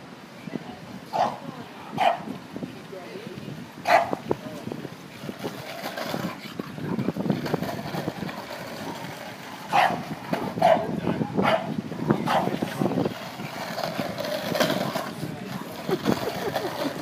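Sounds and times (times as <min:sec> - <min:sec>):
dog barking: 0:01.1 - 0:01.4, 0:02.0 - 0:02.3, 0:03.8 - 0:04.2, 0:09.7 - 0:10.0, 0:10.6 - 0:11.7, 0:12.3 - 0:12.5.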